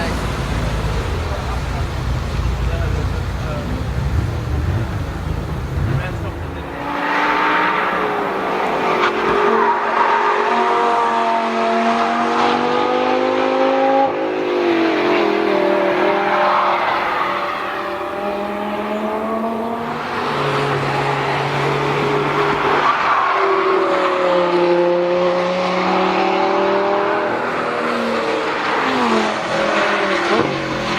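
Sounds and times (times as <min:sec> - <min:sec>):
sports car engine accelerating: 0:00.0 - 0:09.6, 0:10.4 - 0:23.2.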